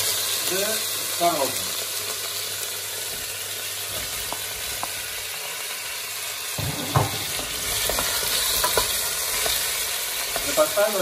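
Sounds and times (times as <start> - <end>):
vegetables sizzling in oil: 0.0 - 11.0
spoon knock and scrape: 6.6 - 8.1.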